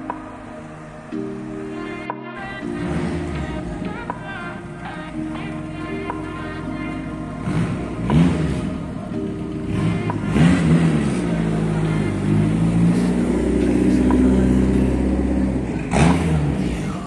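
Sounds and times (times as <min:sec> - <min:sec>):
car engine running: 0:09.7 - 0:17.0.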